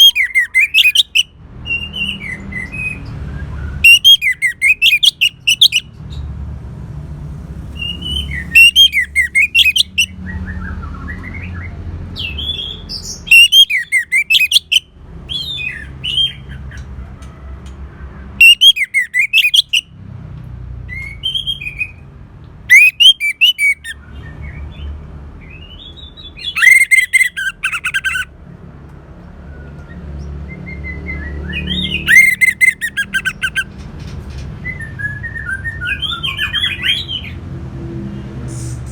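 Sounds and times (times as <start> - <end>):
thrush singing: 7.7 - 10.3, 22.7 - 24.0.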